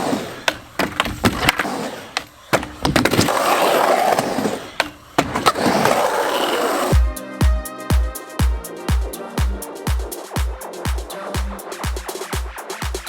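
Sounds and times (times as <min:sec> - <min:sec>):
skateboard clacks: 0:00.0 - 0:07.0
skateboard wheels rolling on concrete: 0:00.0 - 0:07.0.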